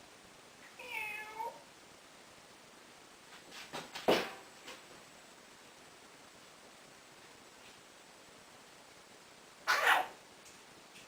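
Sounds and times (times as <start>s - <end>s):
parrot mimicking cat meow: 0.8s - 1.6s, 9.7s - 10.2s.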